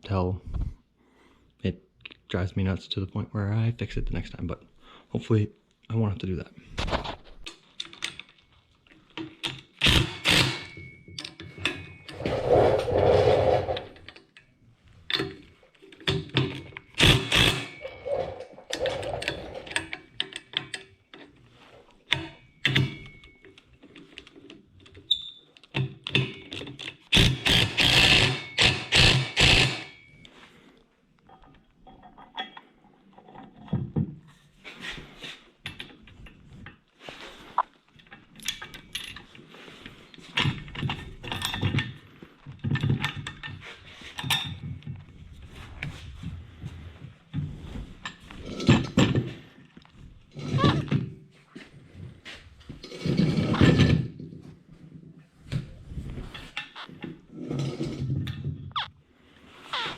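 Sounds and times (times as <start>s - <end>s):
rough rubbing: 12.1s - 14.0s.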